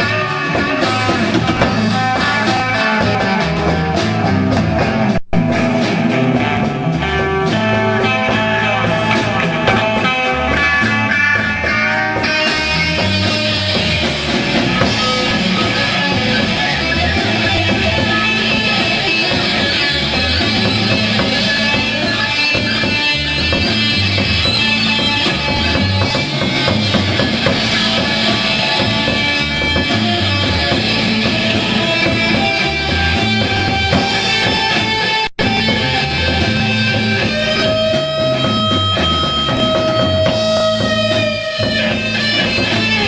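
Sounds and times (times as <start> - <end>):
bass and drums: 0.0 - 43.0
electric guitar: 0.0 - 43.0
cymbals: 11.7 - 43.0.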